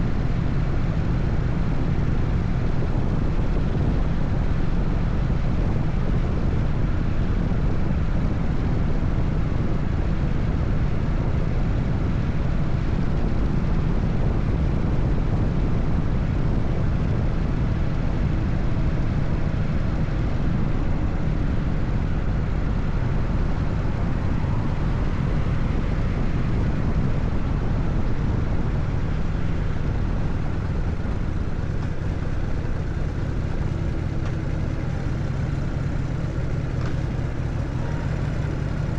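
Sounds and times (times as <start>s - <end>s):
wind and road noise: 0.0s - 38.9s
motorcycle engine cruising: 19.6s - 38.9s.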